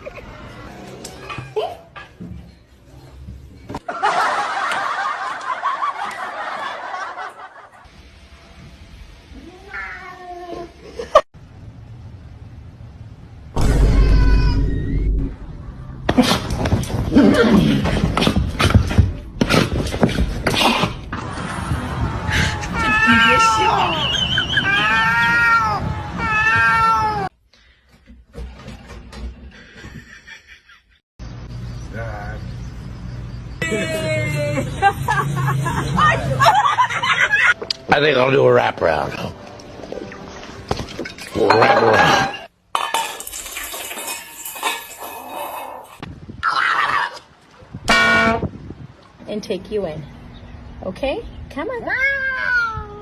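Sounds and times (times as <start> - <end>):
people laughing: 3.8 - 7.9, 33.6 - 37.6
cat meowing: 9.4 - 10.6, 24.7 - 27.3, 51.9 - 53.0.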